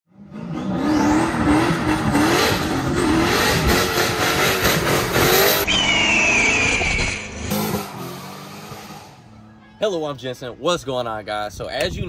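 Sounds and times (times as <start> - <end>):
high turbo whine: 0.1 - 9.4
car engine revving: 0.1 - 9.5.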